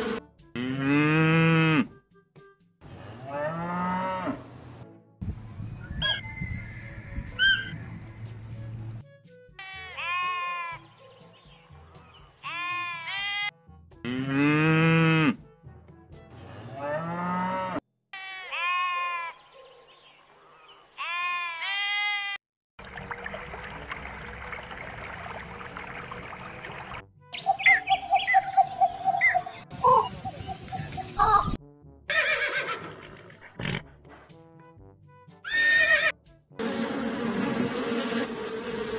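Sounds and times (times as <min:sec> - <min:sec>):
sheep bleating: 0:09.6 - 0:10.8, 0:12.4 - 0:13.5, 0:18.2 - 0:19.4, 0:21.0 - 0:22.3.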